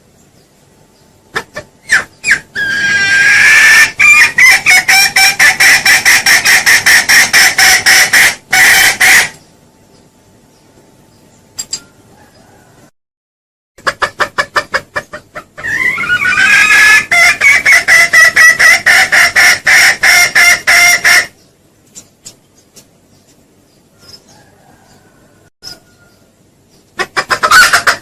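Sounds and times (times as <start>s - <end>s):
quick clucks: 1.3s - 2.1s, 13.8s - 15.6s, 27.0s - 28.0s.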